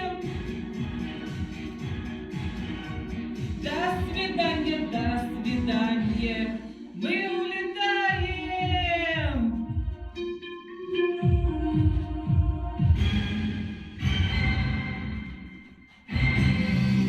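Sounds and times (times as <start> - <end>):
steady low beat: 0.0 - 6.6, 8.1 - 10.3, 11.2 - 13.2
voices singing: 0.0 - 13.5.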